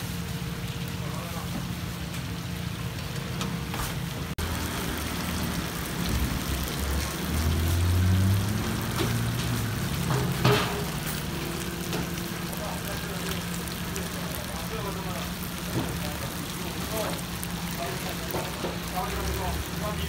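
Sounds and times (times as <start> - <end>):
buns sizzling in oil: 0.0 - 20.0.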